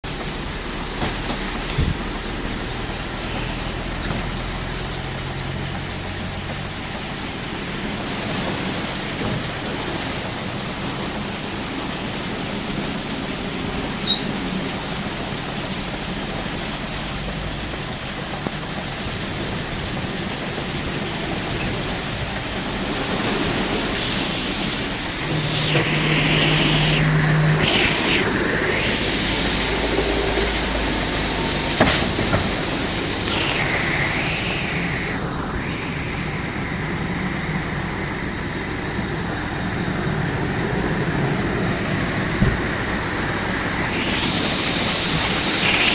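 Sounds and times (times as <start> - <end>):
spraying water and machinery: 0.0 - 45.9
low motor hum: 14.6 - 45.9
loud swish: 23.9 - 37.0.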